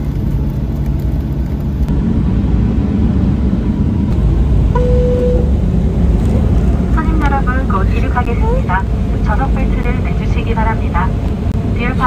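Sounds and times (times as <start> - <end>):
airliner engines rumbling: 0.0 - 12.0
chime tone: 4.8 - 5.5.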